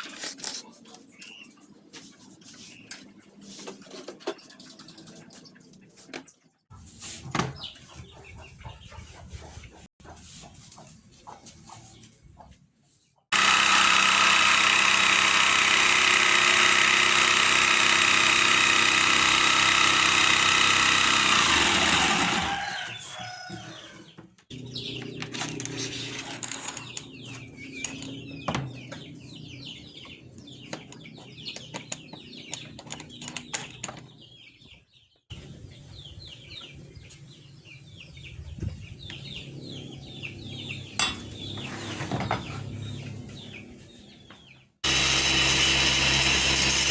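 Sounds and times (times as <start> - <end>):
table saw motor running: 13.3 - 23.0, 44.8 - 46.9.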